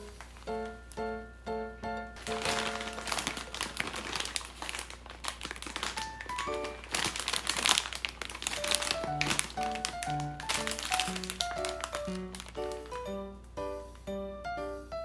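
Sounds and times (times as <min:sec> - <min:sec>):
packaging crinkling and rustling: 0:00.0 - 0:00.8, 0:02.2 - 0:13.1
background music of melodic notes: 0:00.0 - 0:04.3, 0:05.8 - 0:07.8, 0:08.4 - 0:15.0.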